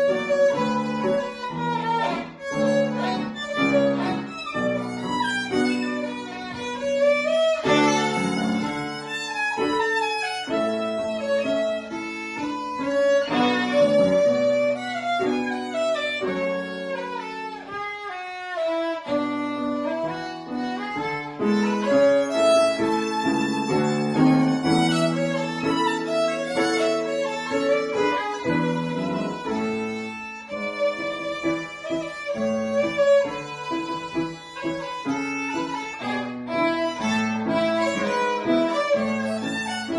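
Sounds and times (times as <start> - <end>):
violin playing classical piece: 0.0 - 39.9.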